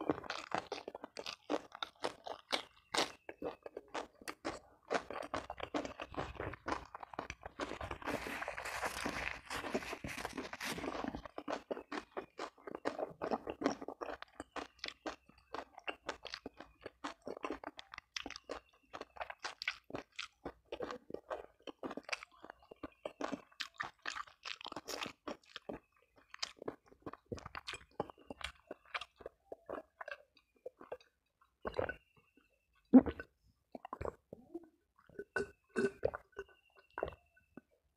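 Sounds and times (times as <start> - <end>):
chewing and lip-smacking: 0.0 - 37.8
tissue rustling: 8.1 - 10.8.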